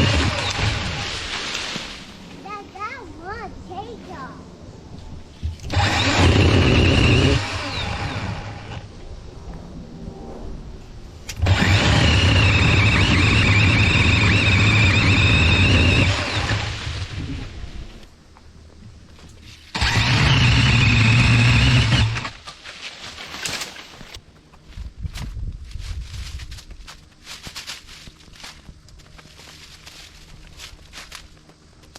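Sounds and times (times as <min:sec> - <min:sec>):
battery pole saw whining: 0:00.0 - 0:01.6, 0:05.5 - 0:08.9, 0:11.3 - 0:18.1, 0:19.7 - 0:22.5.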